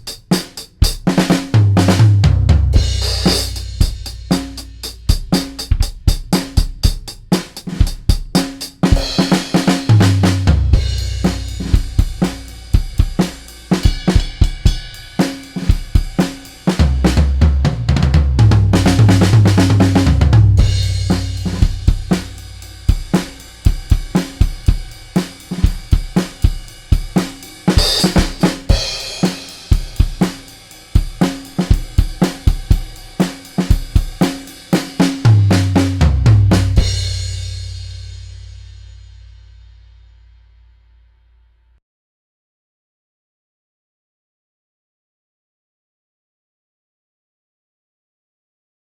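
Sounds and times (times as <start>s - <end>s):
drum kit groove: 0.0s - 39.3s
low bass notes: 1.9s - 4.8s, 9.9s - 13.2s, 17.0s - 23.6s.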